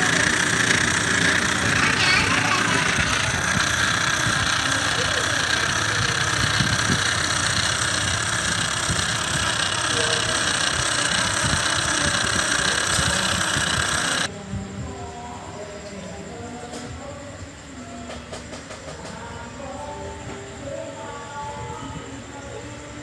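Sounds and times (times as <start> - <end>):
model aircraft engine buzzing: 0.0 - 14.3.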